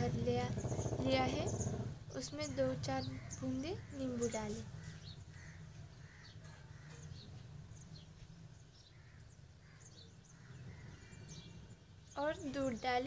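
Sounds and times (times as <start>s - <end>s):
faint bird chirps: 0.3s - 13.0s.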